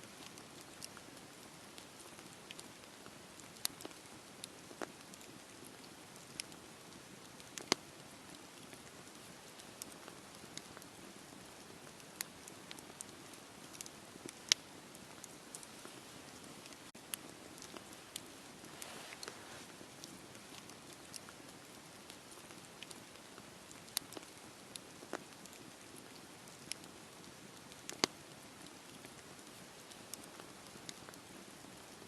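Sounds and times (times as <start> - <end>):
wood fire crackling and popping: 0.1 - 32.0.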